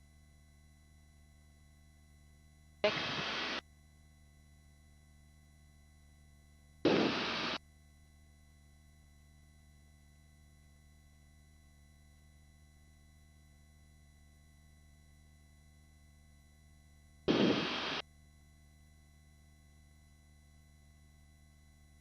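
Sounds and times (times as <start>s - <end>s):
faint electronic hum: 0.0s - 22.0s
intercom rushing noise bursts: 2.8s - 3.6s, 6.9s - 7.6s, 17.3s - 18.0s.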